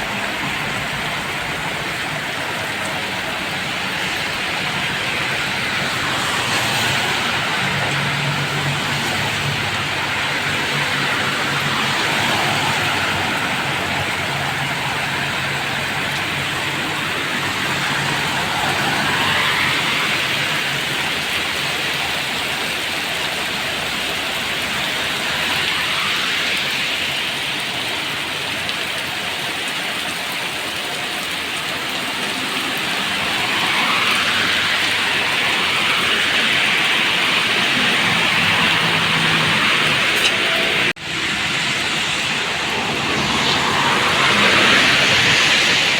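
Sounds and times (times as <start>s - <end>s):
steady rain falling: 0.0s - 45.9s
tyres hissing on wet road: 0.0s - 45.9s
vehicle engine humming: 31.2s - 45.9s.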